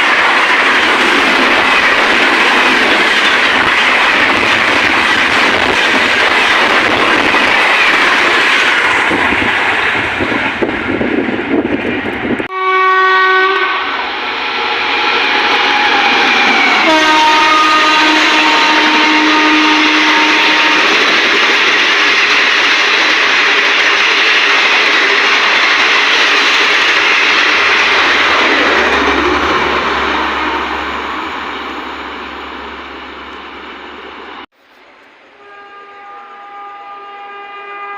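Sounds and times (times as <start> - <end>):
train coaches rushing and clattering: 0.0 - 12.5, 13.9 - 34.5
locomotive horn blast: 12.5 - 14.0, 14.8 - 21.0, 28.9 - 33.3, 35.4 - 37.9.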